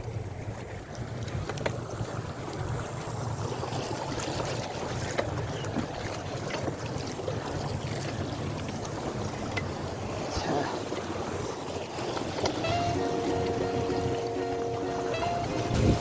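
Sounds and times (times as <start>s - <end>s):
wind buffeting microphone: 11.0s - 16.0s.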